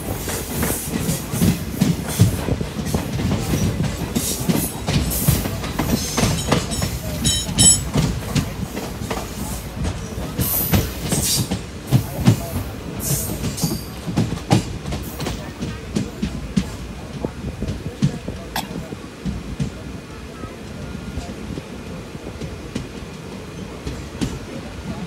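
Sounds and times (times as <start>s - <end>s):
train wheels clattering over rail joints: 0.0s - 19.8s.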